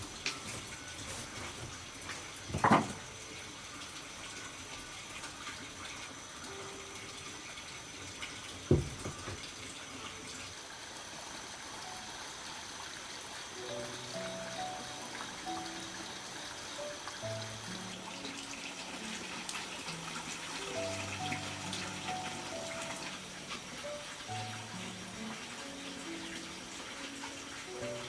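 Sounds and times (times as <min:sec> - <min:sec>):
running water: 0:00.0 - 0:28.0.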